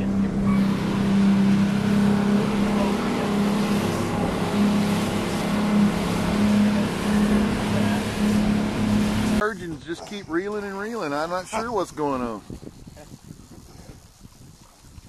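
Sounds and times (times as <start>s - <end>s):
boat engine humming: 0.0s - 13.4s.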